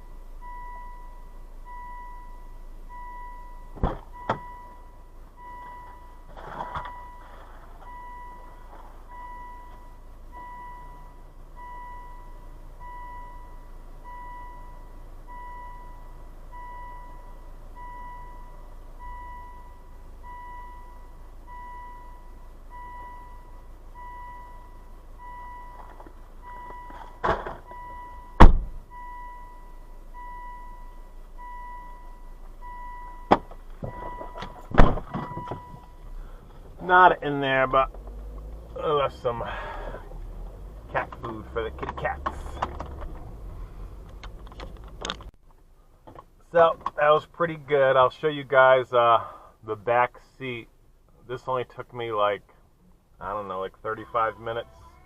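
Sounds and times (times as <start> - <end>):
car warning chime beeping: 0.0 - 43.6, 53.1 - 55.0
low engine hum: 0.0 - 48.0
thuds: 3.7 - 4.5, 25.7 - 27.7, 28.4 - 28.8, 33.3 - 35.9.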